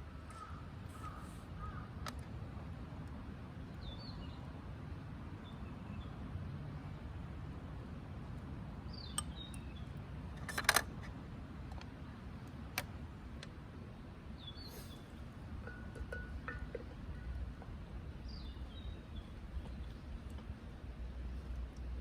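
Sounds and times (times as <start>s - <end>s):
small birds chirping: 8.8s - 10.0s, 14.3s - 15.9s, 18.2s - 20.3s.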